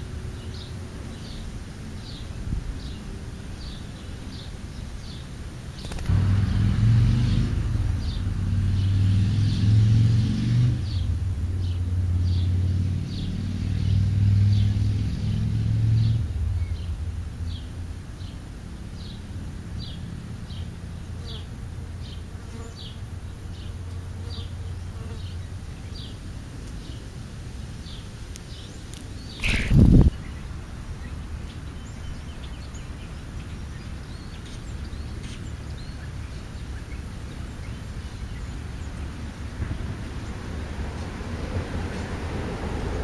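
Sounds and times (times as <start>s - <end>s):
small birds chirping: 0.0s - 9.8s, 10.8s - 41.2s
loud rushing buzz: 5.8s - 19.6s, 29.3s - 30.3s.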